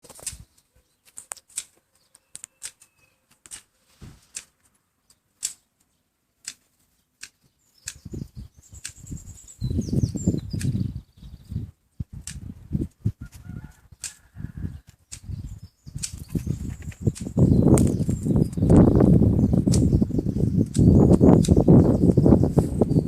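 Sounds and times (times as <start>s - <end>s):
high-pitched bird chirps: 2.0s - 3.2s, 7.7s - 11.7s, 14.7s - 23.0s
sharp taps and clicks: 4.3s - 5.6s
bird wings flapping: 16.1s - 17.1s.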